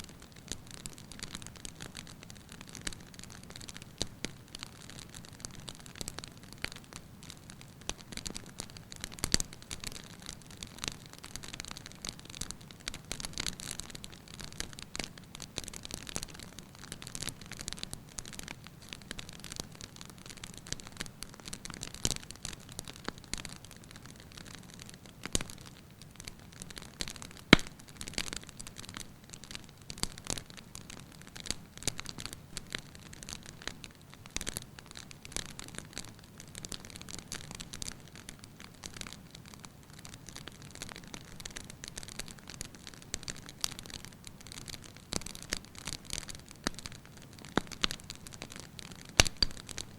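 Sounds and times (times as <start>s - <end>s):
firewood crackling and popping: 0.0s - 49.9s
soft hiss of flame: 49.1s - 49.9s.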